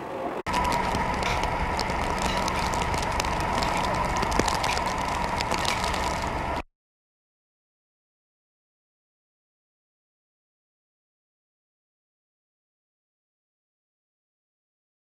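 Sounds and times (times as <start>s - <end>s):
vehicle running hum: 0.5s - 6.6s.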